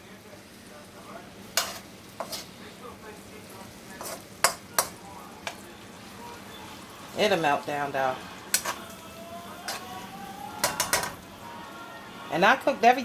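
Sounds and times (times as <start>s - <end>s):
faint sizzle: 0.0s - 13.0s
utensil scraping in a frying pan: 1.2s - 11.4s.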